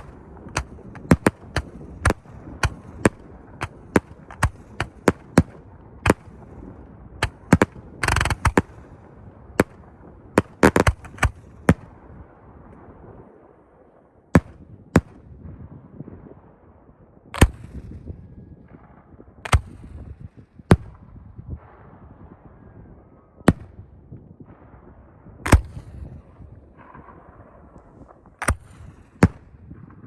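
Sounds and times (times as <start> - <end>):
fireworks crackling: 0.0 - 13.4
fireworks bangs: 0.0 - 30.0.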